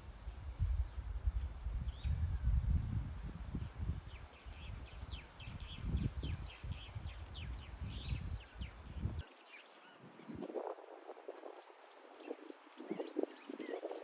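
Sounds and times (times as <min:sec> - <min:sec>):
steady low rumble: 0:00.0 - 0:09.2
birds chirping: 0:04.1 - 0:14.0.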